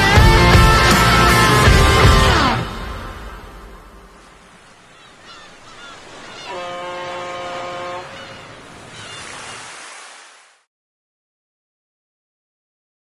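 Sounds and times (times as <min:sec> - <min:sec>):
surf-like noise: 0:02.5 - 0:10.7
ship's horn blast: 0:06.1 - 0:08.7.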